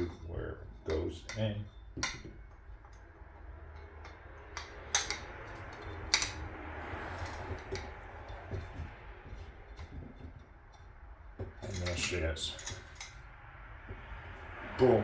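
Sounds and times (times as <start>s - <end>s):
metal parts clinking and knocking: 3.7s - 6.5s, 11.4s - 13.2s.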